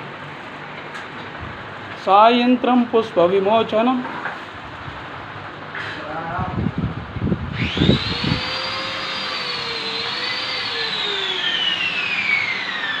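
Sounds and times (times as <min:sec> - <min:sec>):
angle grinder whine: 0:07.4 - 0:13.0.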